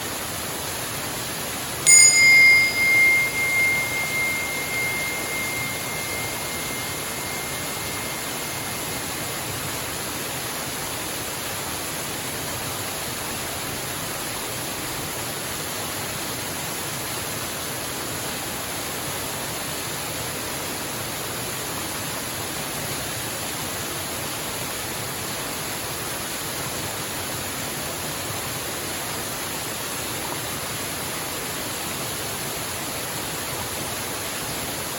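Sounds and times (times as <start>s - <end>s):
struck bell ringing: 1.9s - 9.4s.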